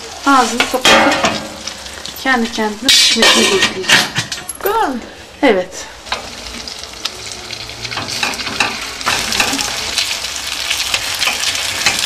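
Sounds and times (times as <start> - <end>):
mixture sizzling in butter: 6.0 - 12.0.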